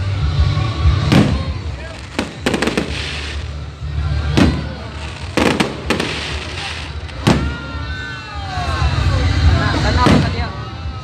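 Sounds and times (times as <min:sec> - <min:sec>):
fireworks bangs: 0:00.9 - 0:08.2, 0:09.8 - 0:10.6.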